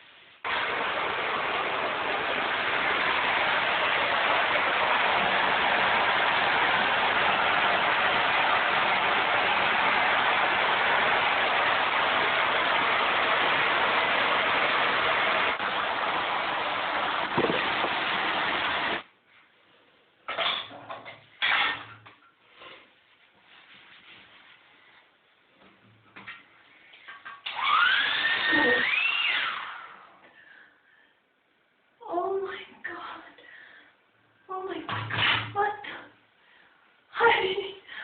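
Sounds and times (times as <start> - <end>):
hair dryer running: 0.5 - 19.0, 27.5 - 29.3.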